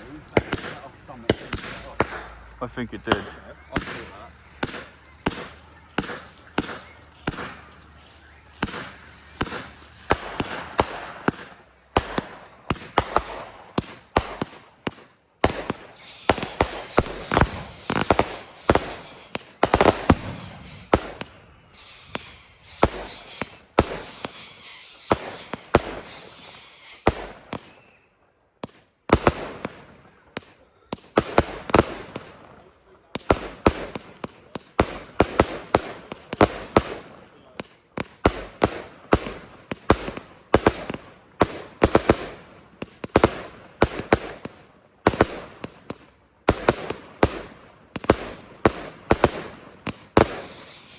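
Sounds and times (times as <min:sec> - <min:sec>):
fireworks bangs and cracks: 0:00.0 - 0:28.0, 0:28.6 - 0:50.9
short falling whistles: 0:15.9 - 0:28.2, 0:50.1 - 0:50.9.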